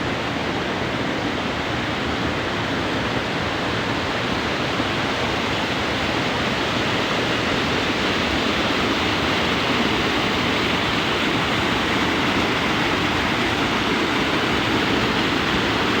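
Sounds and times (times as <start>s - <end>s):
fast-flowing water rushing: 5.7s - 16.0s.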